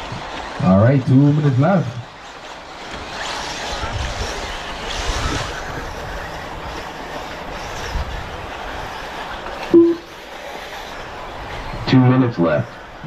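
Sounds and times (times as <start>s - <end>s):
electric toy cars racing: 0.0s - 13.0s
loud beep: 9.7s - 10.1s.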